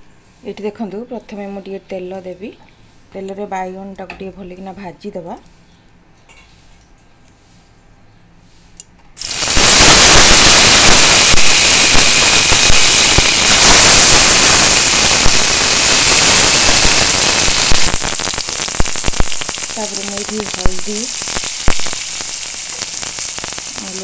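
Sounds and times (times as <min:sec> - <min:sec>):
vegetables sizzling in hot oil: 0:09.2 - 0:24.0.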